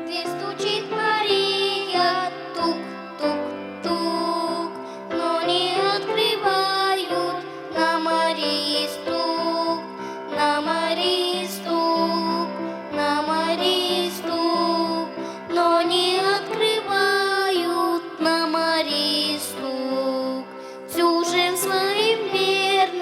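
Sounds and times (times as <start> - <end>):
instrumental accompaniment: 0.0 - 23.0
voices singing church song: 0.0 - 23.0.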